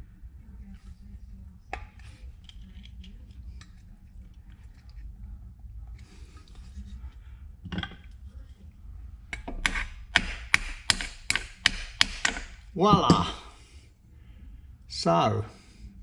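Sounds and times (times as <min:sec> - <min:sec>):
metal-on-metal tapping: 0:09.3 - 0:13.4.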